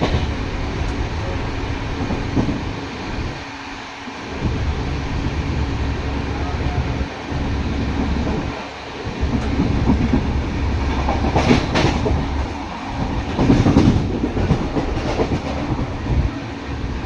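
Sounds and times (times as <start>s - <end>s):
train wheel clatter: 0.0s - 3.4s, 7.3s - 17.0s
train rumbling on rails: 0.0s - 17.0s.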